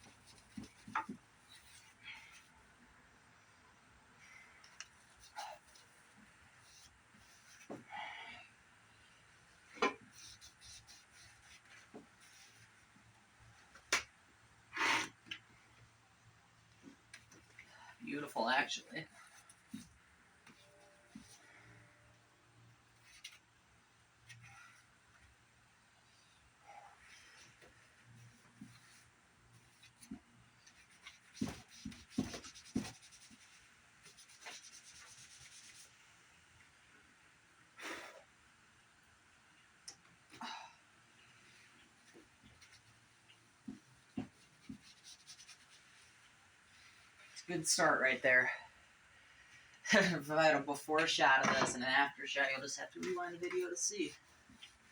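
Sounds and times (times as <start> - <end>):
wipe rubbing on monitor: 27.0 - 36.0, 41.5 - 47.4.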